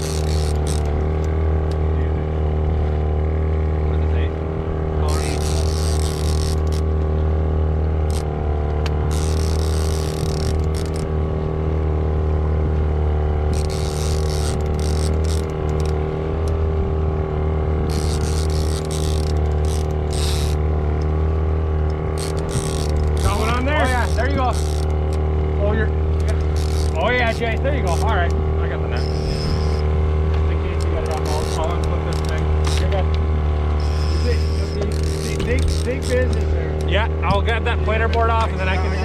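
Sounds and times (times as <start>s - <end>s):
fishing reel ratcheting: 0.0s - 1.4s, 5.1s - 6.9s, 8.0s - 8.3s, 9.1s - 11.1s, 13.5s - 16.0s, 17.9s - 20.6s, 22.2s - 25.2s, 26.2s - 28.3s, 29.0s - 29.8s, 30.7s - 33.0s, 33.8s - 36.9s
boat motor running: 0.0s - 39.0s.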